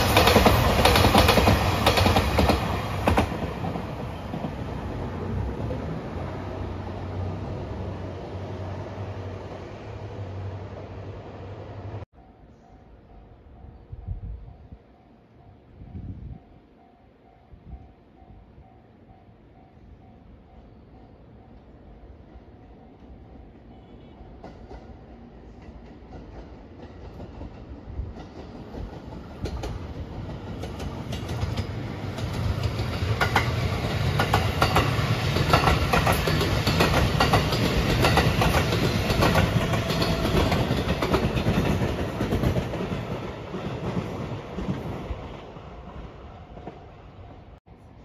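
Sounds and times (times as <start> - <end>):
electric train passing: 0.0 - 48.0
wheels clacking over rail joints: 25.6 - 45.5.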